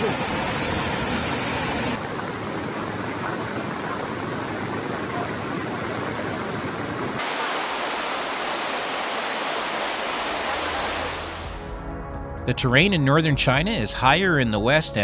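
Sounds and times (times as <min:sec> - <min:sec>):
water rushing: 0:00.0 - 0:11.6.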